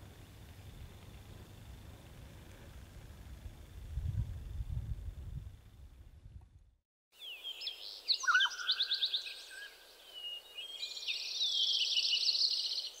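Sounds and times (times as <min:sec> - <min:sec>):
low rumble: 0:00.0 - 0:06.8
songbirds singing: 0:07.2 - 0:13.0
fast bird trill: 0:07.6 - 0:09.6.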